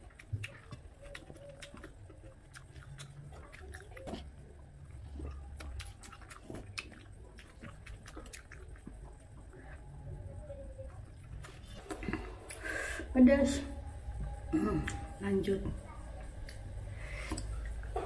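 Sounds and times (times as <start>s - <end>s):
chewing and wet mouth clicks: 0.0s - 9.8s, 16.2s - 18.0s.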